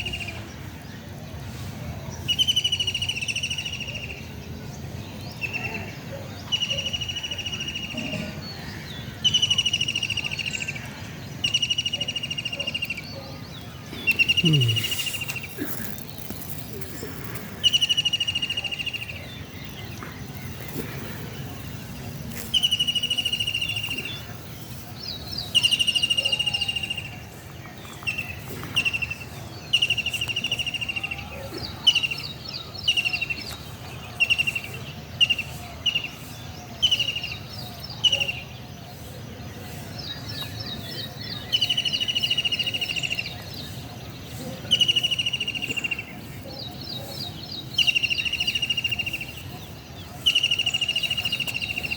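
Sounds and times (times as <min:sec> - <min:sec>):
buzzy bird trill: 0:11.4 - 0:27.3.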